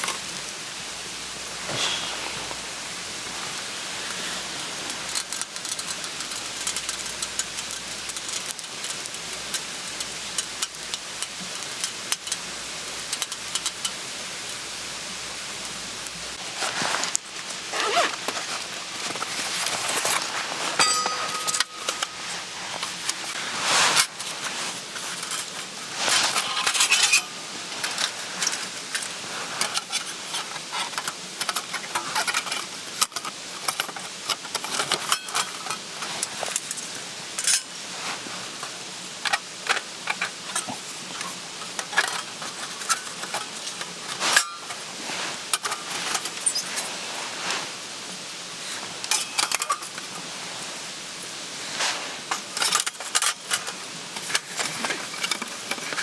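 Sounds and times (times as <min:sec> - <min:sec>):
metal cookware clinking: 0:20.7 - 0:23.0, 0:44.3 - 0:44.8.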